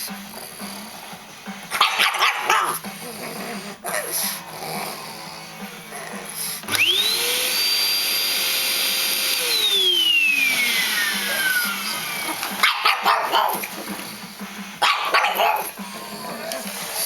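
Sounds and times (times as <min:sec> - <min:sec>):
dog barking: 0:01.7 - 0:02.8, 0:12.6 - 0:13.7, 0:14.8 - 0:16.4
vacuum cleaner motor whining: 0:04.0 - 0:15.1.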